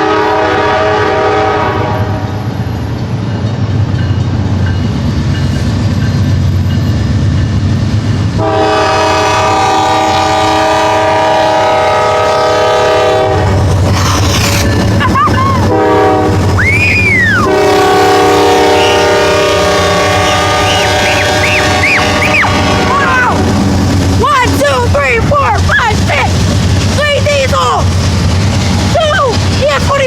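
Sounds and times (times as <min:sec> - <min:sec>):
locomotive horn blasts: 0:00.0 - 0:02.4, 0:08.4 - 0:13.6, 0:15.6 - 0:16.6, 0:17.4 - 0:23.5.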